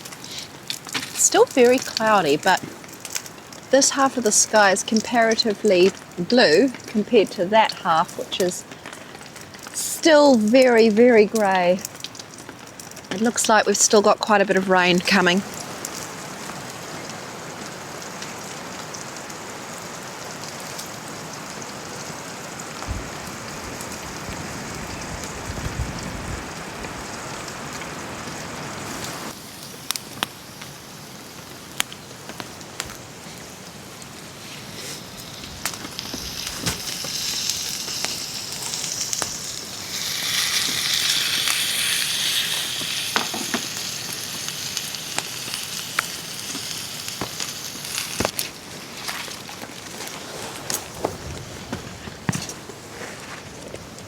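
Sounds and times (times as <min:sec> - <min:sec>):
campfire crackling and popping: 0:00.0 - 0:54.0
rain hiss: 0:00.0 - 0:54.0
high sizzling hiss: 0:13.1 - 0:49.9.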